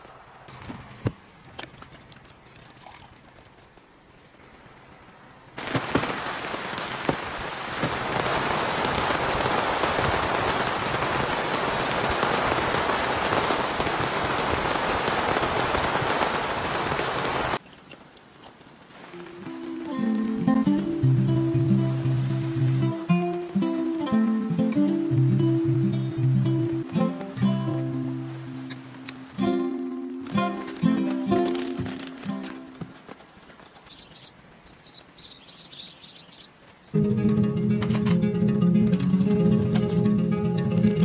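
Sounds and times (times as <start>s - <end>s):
heavy rain pouring: 5.6s - 17.6s, 18.9s - 37.2s.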